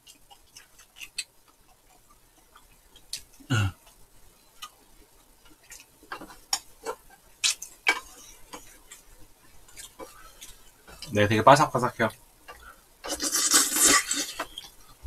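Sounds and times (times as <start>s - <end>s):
crunching crisp rice: 13.0s - 14.7s.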